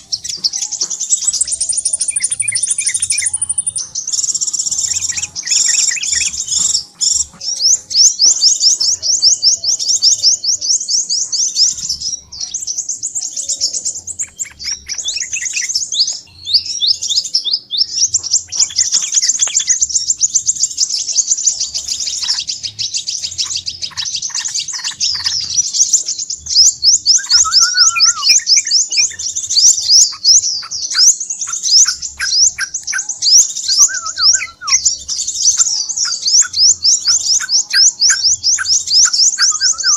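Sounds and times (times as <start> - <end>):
high-pitched twittering trill: 0.0 - 39.9
lower bird call notes: 21.6 - 39.9.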